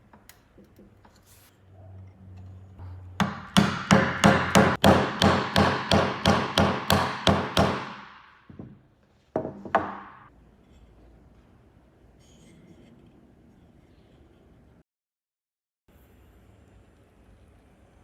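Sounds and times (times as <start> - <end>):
hammer blows ringing: 3.2 - 8.2.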